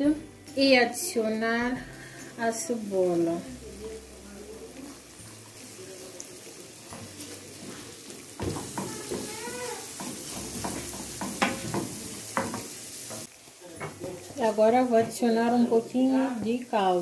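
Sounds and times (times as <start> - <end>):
onion sizzling in oil: 0.0 - 17.0
wooden spoon knocking pan: 8.4 - 15.8.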